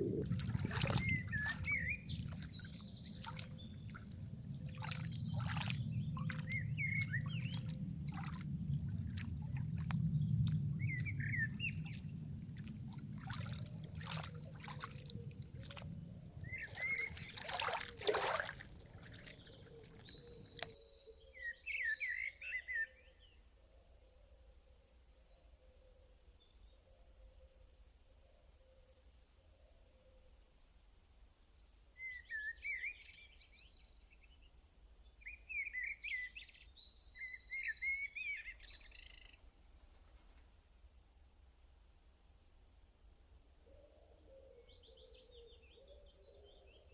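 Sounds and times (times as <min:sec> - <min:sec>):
small birds chirping: 0:00.0 - 0:08.4, 0:09.0 - 0:15.8, 0:16.4 - 0:22.6
low steady rumble: 0:00.0 - 0:17.6
trickling water: 0:00.0 - 0:20.8.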